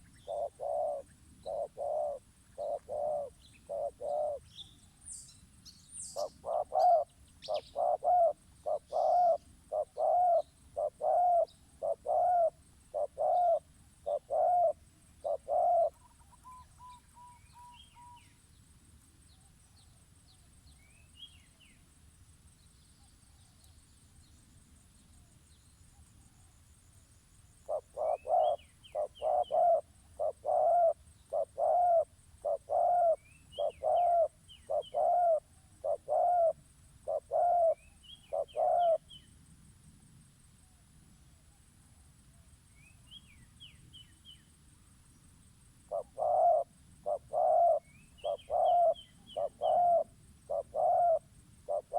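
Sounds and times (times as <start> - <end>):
cooing hoot bird call: 0.0 - 4.5, 6.1 - 18.3, 27.7 - 39.1, 45.9 - 51.9
small birds chirping: 0.0 - 18.7, 22.5 - 39.4, 45.9 - 51.9.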